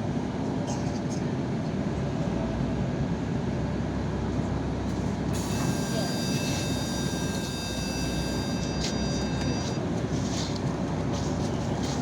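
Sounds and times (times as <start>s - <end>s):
bus engine and road rumble: 0.0s - 12.0s
thin high whine: 5.4s - 9.8s.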